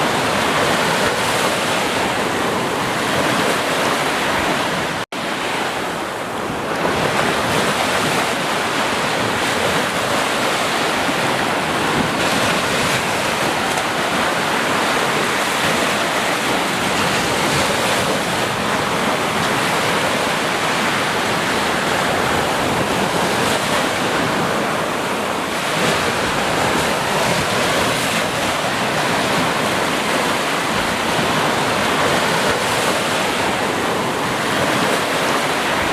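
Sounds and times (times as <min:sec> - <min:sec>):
rushing water: 0:00.0 - 0:35.9.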